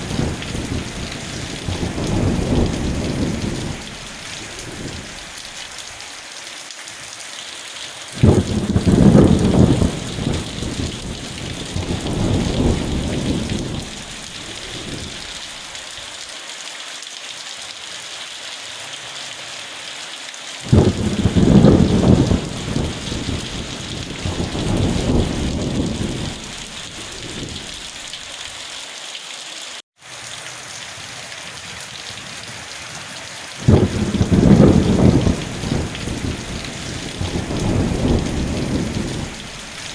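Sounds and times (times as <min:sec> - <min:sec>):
thunder rumbling: 0:00.0 - 0:05.6, 0:08.2 - 0:15.5, 0:20.7 - 0:28.0, 0:33.6 - 0:39.9
steady rain: 0:00.0 - 0:39.9.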